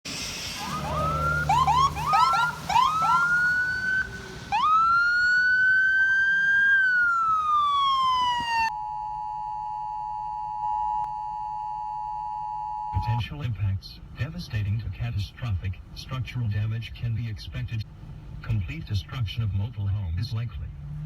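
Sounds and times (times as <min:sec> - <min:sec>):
emergency siren yelping and wailing: 0:00.4 - 0:11.0.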